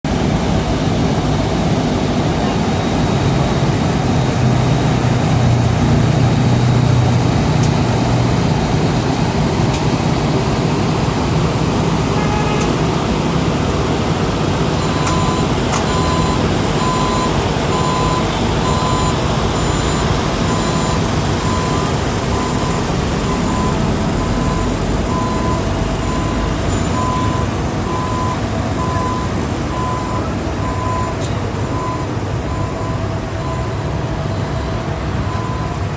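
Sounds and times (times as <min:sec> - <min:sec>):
diesel engine of heavy machinery: 0:00.1 - 0:35.9
reversing alarm beeping: 0:14.8 - 0:35.9.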